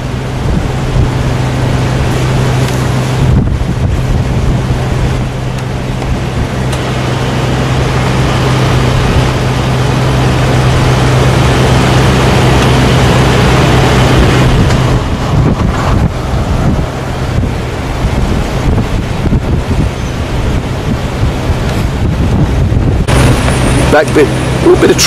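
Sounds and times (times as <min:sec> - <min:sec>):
wind on microphone: 0:00.0 - 0:24.8
diesel truck engine running: 0:00.0 - 0:25.0.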